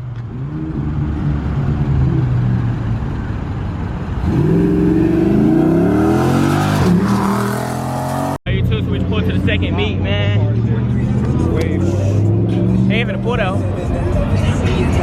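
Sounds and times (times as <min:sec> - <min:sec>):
car engine accelerating hard: 0:04.2 - 0:08.4, 0:10.4 - 0:14.0.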